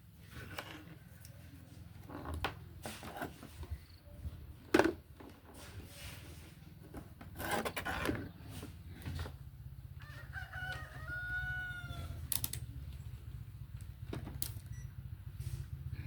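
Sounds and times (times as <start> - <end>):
rooster crowing: 10.0 - 12.2.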